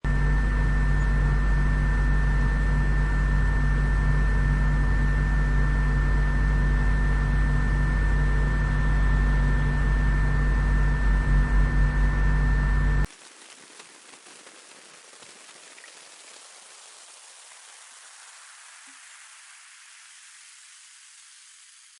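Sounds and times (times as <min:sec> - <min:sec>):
machinery low hum: 0:00.1 - 0:13.1
thin high whine: 0:00.1 - 0:13.1
faint hiss: 0:13.1 - 0:21.9.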